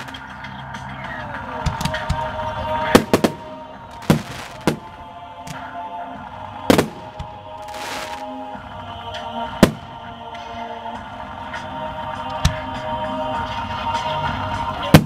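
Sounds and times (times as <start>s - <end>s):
fireworks hissing crackle: 0.0s - 0.2s, 3.0s - 5.0s, 6.7s - 8.6s
fireworks bursting: 0.0s - 0.4s, 1.6s - 5.6s, 6.6s - 8.6s, 9.5s - 10.1s
music playing: 0.0s - 15.0s.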